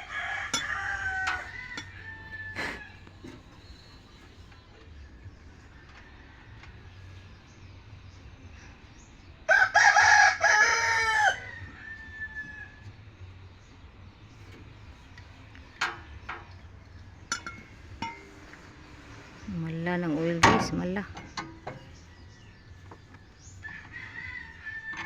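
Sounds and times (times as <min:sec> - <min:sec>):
rooster crowing: 0:00.0 - 0:03.0, 0:09.5 - 0:12.8, 0:23.4 - 0:25.0.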